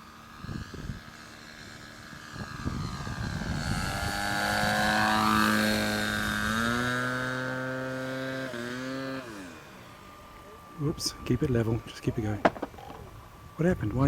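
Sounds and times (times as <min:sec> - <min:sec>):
model plane engine flying past: 0:00.0 - 0:11.2.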